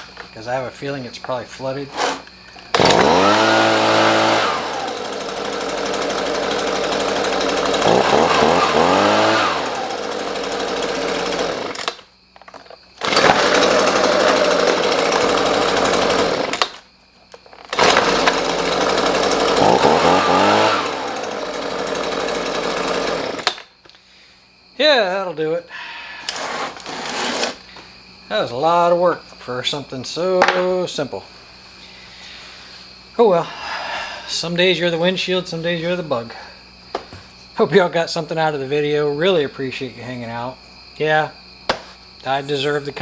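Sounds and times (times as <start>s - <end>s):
leaf blower engine revving: 1.9s - 12.0s, 13.0s - 16.8s, 17.6s - 23.6s, 26.2s - 27.7s.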